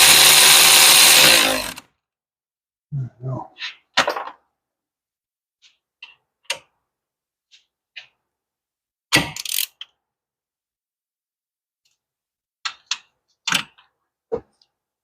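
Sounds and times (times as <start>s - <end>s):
ratchet clicking on bolts: 9.3s - 9.9s.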